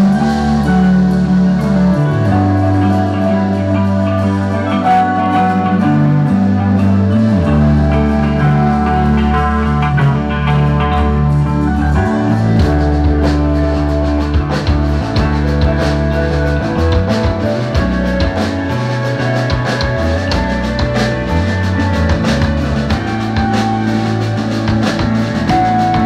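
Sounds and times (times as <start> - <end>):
rock band playing: 0.0 - 26.0
drum hits: 12.0 - 26.0.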